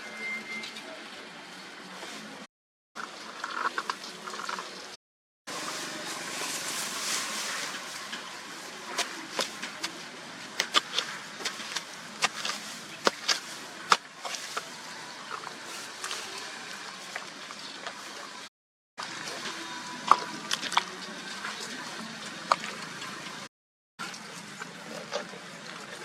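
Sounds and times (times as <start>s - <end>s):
oil popping and crackling: 6.6s - 18.1s.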